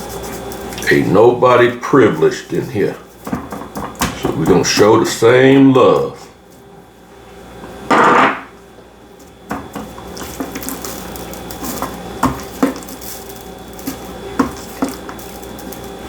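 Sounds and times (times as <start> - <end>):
rustling: 10.0 - 16.0.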